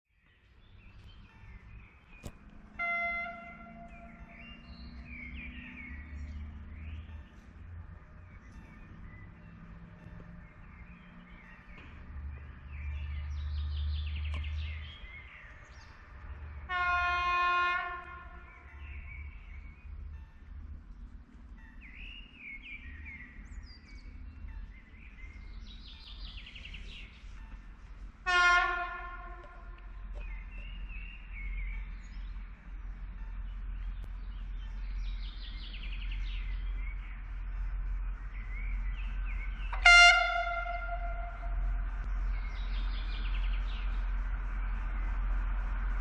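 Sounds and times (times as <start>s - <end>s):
low engine rumble: 0.3s - 46.0s
two-tone train horn: 2.6s - 4.7s, 16.6s - 18.7s, 27.3s - 30.1s, 39.6s - 41.9s.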